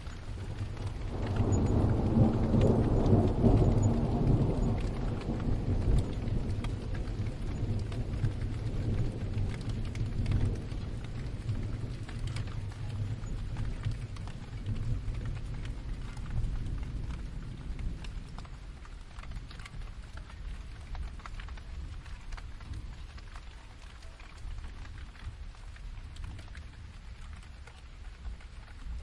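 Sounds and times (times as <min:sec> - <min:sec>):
steady rain: 0:00.0 - 0:29.0
distant thunder rolling: 0:00.1 - 0:20.6.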